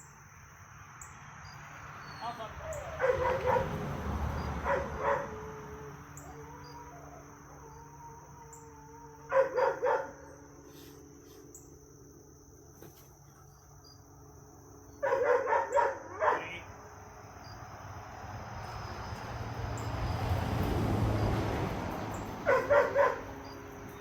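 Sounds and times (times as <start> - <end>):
crickets chirring: 0.0 - 24.0
dogs barking in play: 2.6 - 10.7, 15.0 - 16.8, 22.1 - 24.0.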